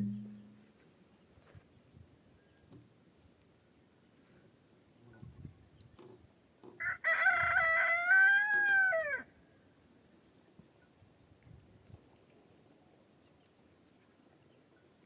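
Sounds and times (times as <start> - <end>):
rooster crowing: 6.8 - 9.3.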